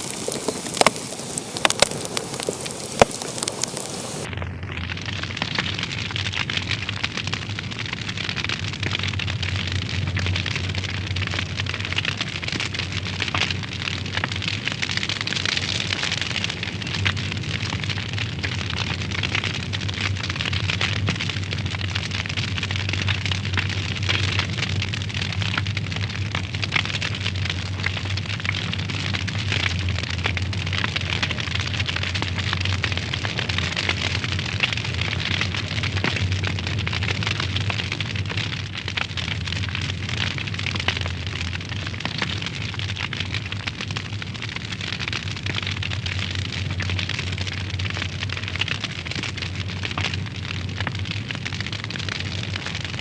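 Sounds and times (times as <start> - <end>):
wood fire crackling: 0.0 - 4.3, 4.9 - 53.0.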